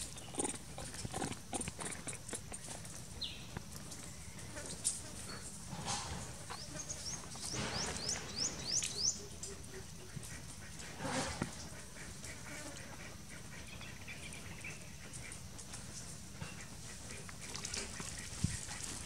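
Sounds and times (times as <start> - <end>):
bird chirping: 6.5 - 9.8.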